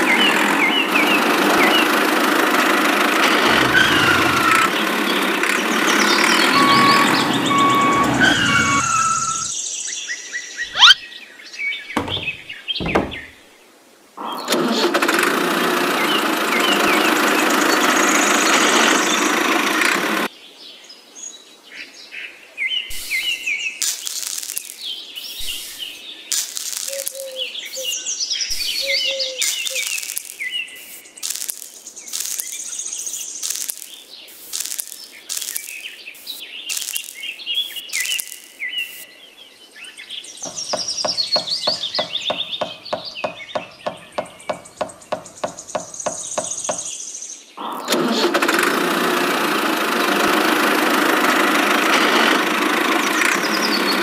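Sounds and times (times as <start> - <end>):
birds chirping: 3.5 - 14.5, 22.8 - 47.9, 52.8 - 54.0
short sharp clicks: 25.4 - 27.9, 29.4 - 39.0.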